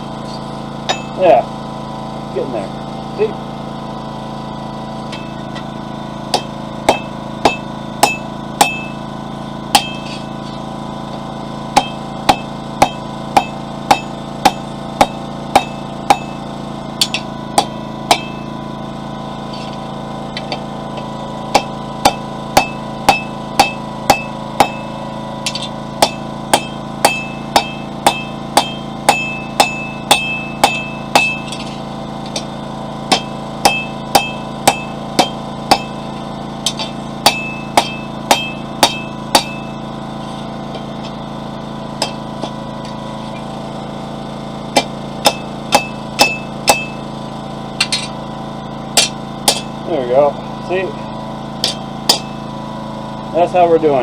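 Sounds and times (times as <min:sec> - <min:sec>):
generator running: 0:00.0 - 0:54.0
hammer striking steel on anvil: 0:00.9 - 0:01.4, 0:05.1 - 0:05.7, 0:06.3 - 0:09.0, 0:09.7 - 0:10.6, 0:11.7 - 0:16.4, 0:17.0 - 0:18.6, 0:19.5 - 0:32.5, 0:33.1 - 0:39.8, 0:42.0 - 0:43.5, 0:44.7 - 0:47.1, 0:47.8 - 0:48.2, 0:48.9 - 0:49.8, 0:51.6 - 0:52.5.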